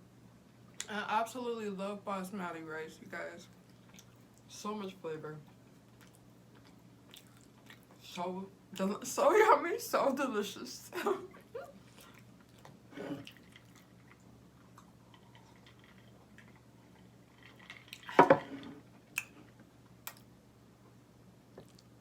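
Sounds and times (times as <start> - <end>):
person chewing food: 3.6 - 4.5, 5.5 - 8.0, 11.8 - 18.1, 21.5 - 22.0
wet mouth clicks: 20.0 - 20.3.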